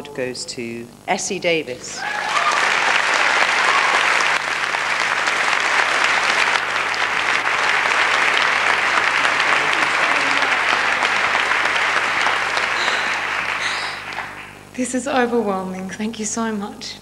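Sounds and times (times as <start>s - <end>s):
audience applauding: 1.9s - 14.7s.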